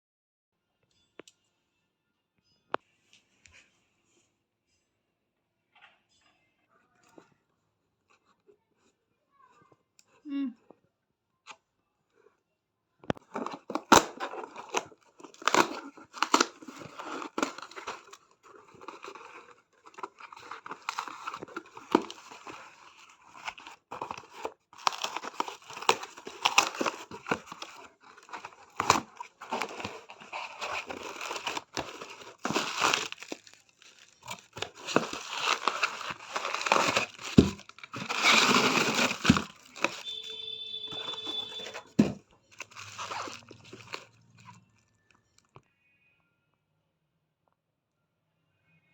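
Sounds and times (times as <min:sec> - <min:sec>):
packaging tearing and crinkling: 0:13.2 - 0:44.6.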